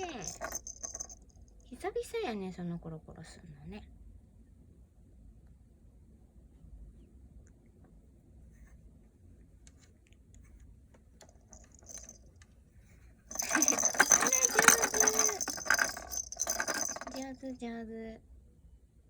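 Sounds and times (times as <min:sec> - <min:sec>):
toy ball jingling rattle: 0:00.0 - 0:01.5, 0:11.5 - 0:12.3, 0:13.3 - 0:17.6.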